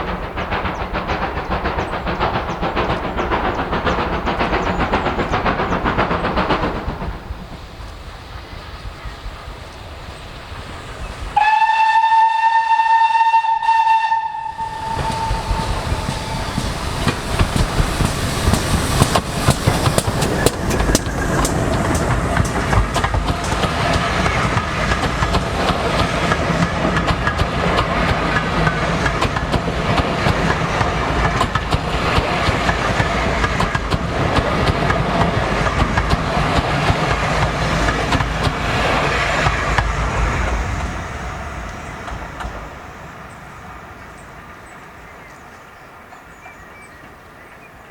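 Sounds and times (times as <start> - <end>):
rail clatter: 0.0 - 11.4, 14.0 - 46.5
train rumbling past: 0.0 - 47.9
steam locomotive whistle: 11.4 - 17.5.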